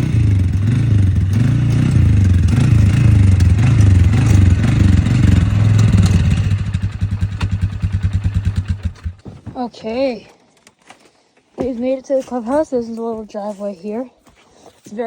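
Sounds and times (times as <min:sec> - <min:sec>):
atv engine running: 0:00.0 - 0:10.2.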